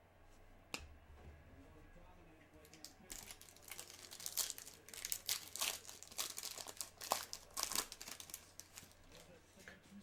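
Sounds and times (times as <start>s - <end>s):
foil wrapper crinkling: 2.8s - 9.3s.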